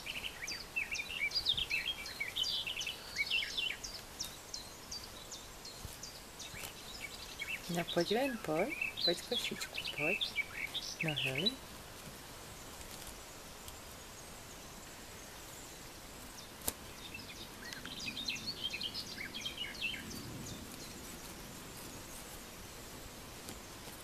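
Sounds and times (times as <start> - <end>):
small bird chirping: 0.0 - 11.6, 15.2 - 22.4
faint hiss: 0.0 - 24.0.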